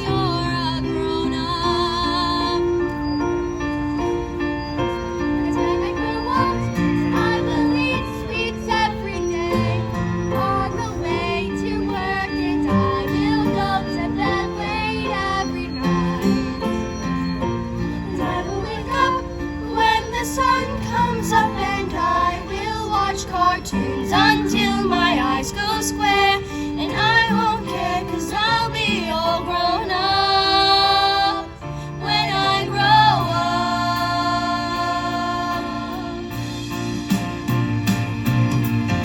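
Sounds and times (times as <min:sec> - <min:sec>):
instrumental backing: 0:00.0 - 0:39.0.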